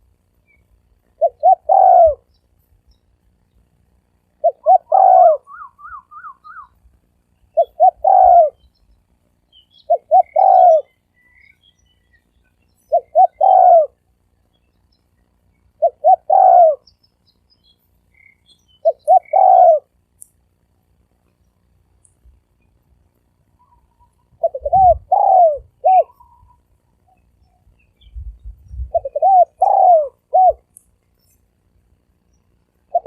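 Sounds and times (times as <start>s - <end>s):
dove cooing: 1.2s - 2.3s, 4.4s - 6.8s, 7.5s - 8.6s, 9.9s - 11.0s, 12.9s - 14.0s, 15.8s - 16.9s, 18.8s - 20.0s, 23.5s - 27.3s, 28.1s - 30.7s.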